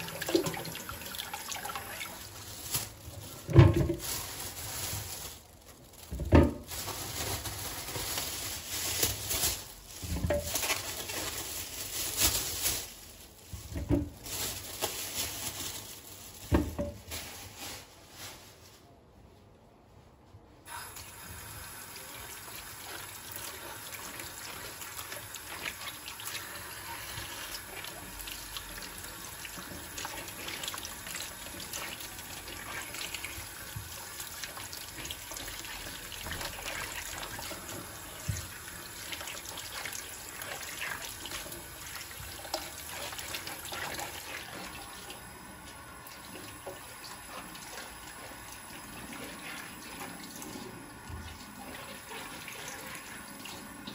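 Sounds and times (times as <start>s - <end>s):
tap water running into sink: 0.0s - 2.4s, 20.7s - 53.9s.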